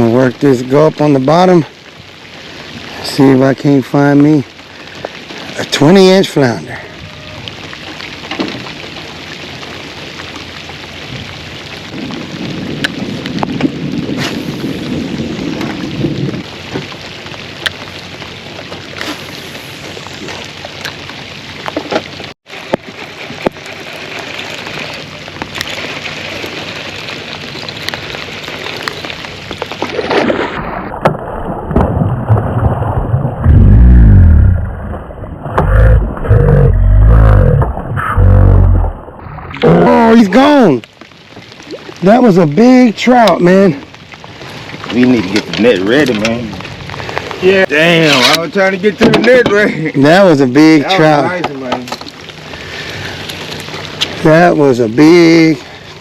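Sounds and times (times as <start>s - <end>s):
rain falling: 0.0s - 56.0s
loud low rumbling blasts: 30.6s - 39.7s.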